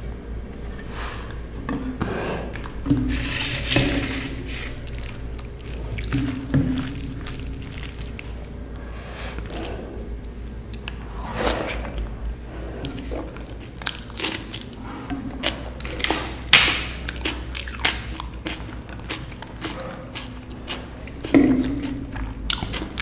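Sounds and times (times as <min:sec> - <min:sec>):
wet chewing and mouth clicks: 0:04.8 - 0:08.4, 0:09.4 - 0:11.2, 0:11.8 - 0:23.0
crunchy bites: 0:13.3 - 0:14.8, 0:15.4 - 0:21.8.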